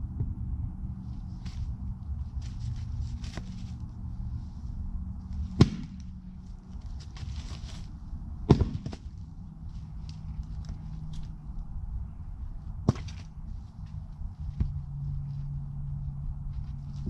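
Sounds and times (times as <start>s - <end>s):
steady low rumble: 0.0s - 17.0s
firewood splitting cracks: 5.5s - 6.2s, 8.5s - 9.1s.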